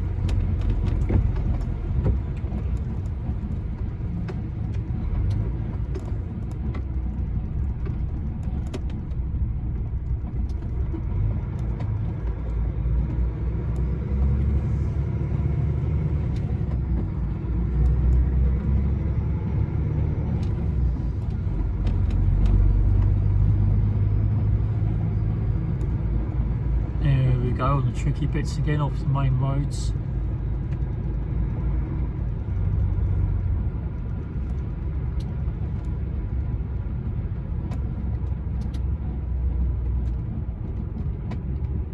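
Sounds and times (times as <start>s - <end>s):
lorry engine and road noise: 0.0s - 41.9s
faint clicks: 33.9s - 36.0s.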